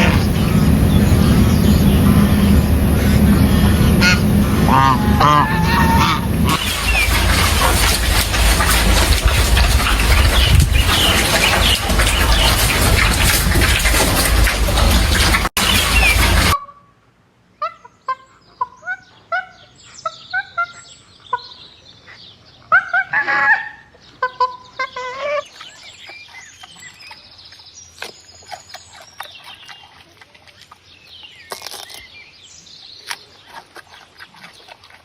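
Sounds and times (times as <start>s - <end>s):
birds chirping and twittering: 0.0s - 16.7s, 17.6s - 35.0s.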